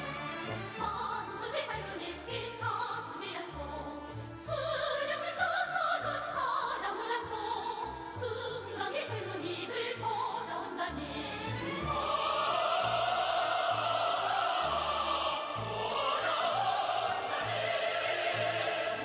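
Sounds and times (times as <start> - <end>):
orchestral accompaniment: 0.0 - 4.4, 10.9 - 19.0
opera singing with vibrato: 0.6 - 19.0.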